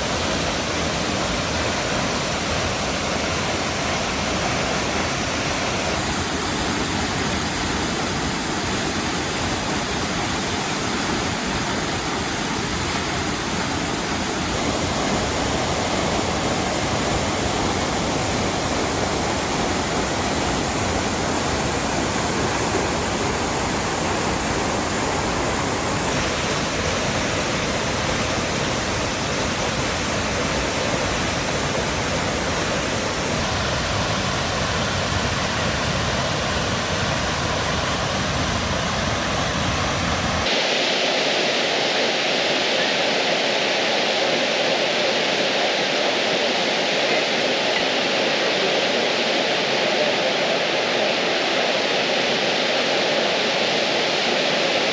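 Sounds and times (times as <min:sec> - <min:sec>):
waterfall roaring: 0:00.0 - 0:54.9.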